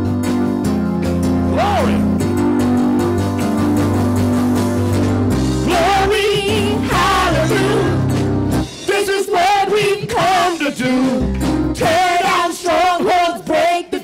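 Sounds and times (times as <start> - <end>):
church band low notes: 0.0 - 13.7
voices singing: 5.6 - 8.1, 8.9 - 14.0.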